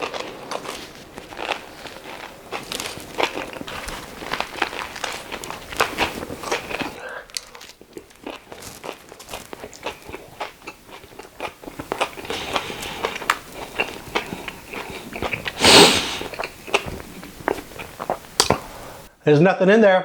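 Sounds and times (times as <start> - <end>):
crunching smacking clicks: 0.0 - 15.6
wet biting and chewing: 0.0 - 18.8.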